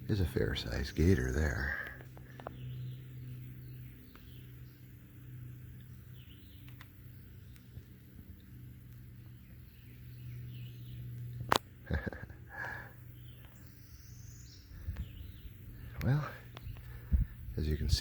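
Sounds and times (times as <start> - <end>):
steady low hum: 0.0 - 18.0
faint bird chirps: 12.6 - 18.0.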